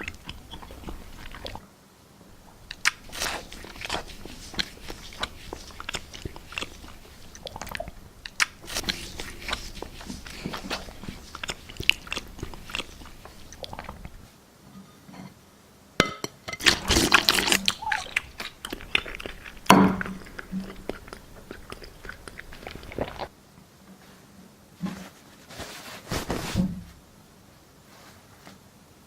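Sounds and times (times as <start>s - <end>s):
person chewing crunchy foam: 0.0s - 1.6s, 2.3s - 14.2s, 16.6s - 23.3s.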